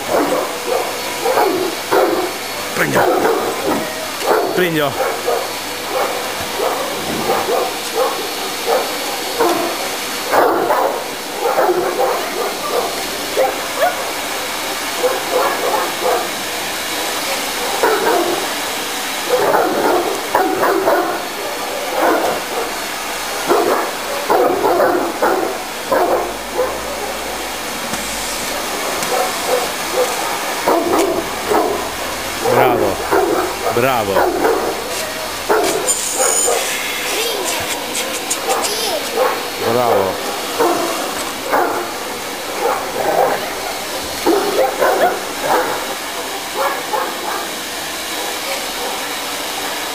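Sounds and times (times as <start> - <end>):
dog barking: 0.0 - 16.6, 17.2 - 18.6, 19.2 - 49.1
vacuum cleaner running: 0.0 - 49.9
dog whimpering and yipping: 34.2 - 40.0.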